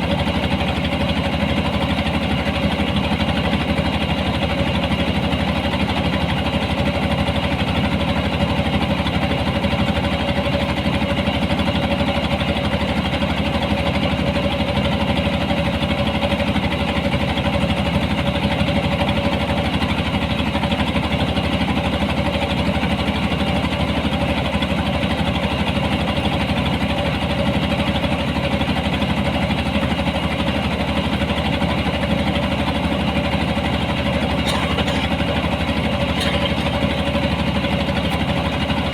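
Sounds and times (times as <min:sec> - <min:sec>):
harvesting machine engine running: 0:30.4 - 0:38.9.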